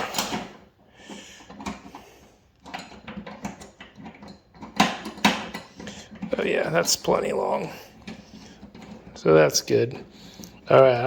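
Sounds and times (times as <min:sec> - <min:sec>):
light metal clicks and knocks: 0:01.4 - 0:07.2.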